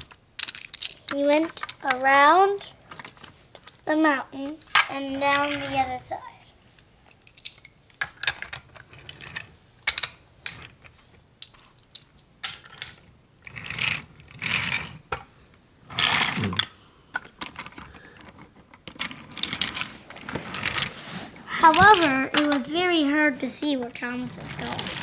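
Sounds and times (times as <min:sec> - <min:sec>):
toy train clattering on track: 0:00.0 - 0:02.1, 0:24.5 - 0:25.0
scraping rustles: 0:19.1 - 0:25.0.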